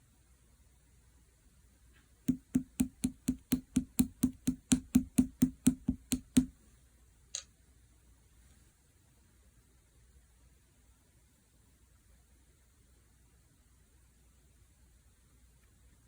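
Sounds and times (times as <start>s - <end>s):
rhythmic knocking with low ring: 2.3s - 6.5s.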